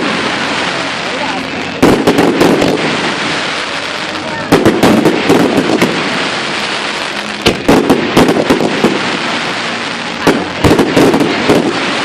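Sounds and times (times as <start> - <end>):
background hiss: 0.0 - 12.0
fireworks bangs: 0.0 - 12.0.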